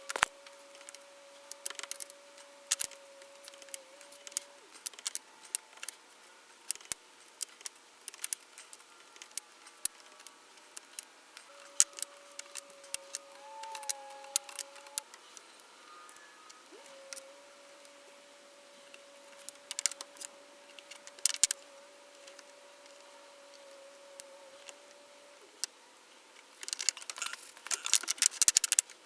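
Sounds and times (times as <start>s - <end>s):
small hard objects clicking: 0.0s - 6.0s, 6.7s - 15.0s, 19.4s - 21.6s, 26.6s - 29.0s
faint steady tone: 8.6s - 25.9s.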